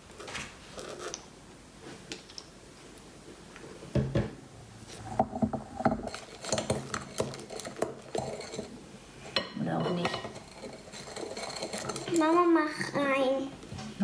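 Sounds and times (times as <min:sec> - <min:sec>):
spoon clinking and scraping in bowl: 0:06.1 - 0:13.0.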